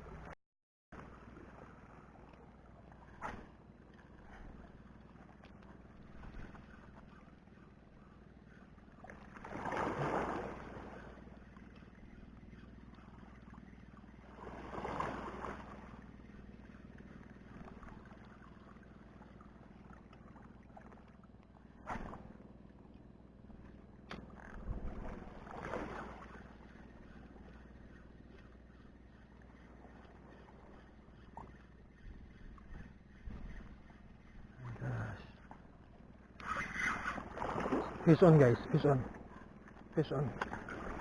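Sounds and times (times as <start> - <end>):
small waves washing in: 8.4 - 11.9, 12.8 - 22.8, 24.7 - 31.7, 33.2 - 41.0.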